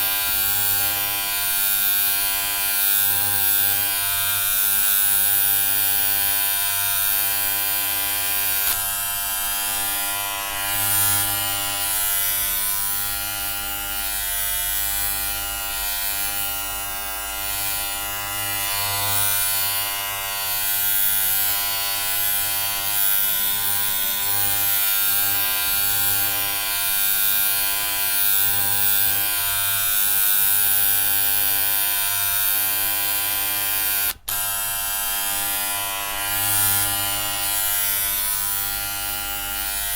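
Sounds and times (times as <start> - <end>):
electric hair clippers buzzing: 0.0 - 39.9.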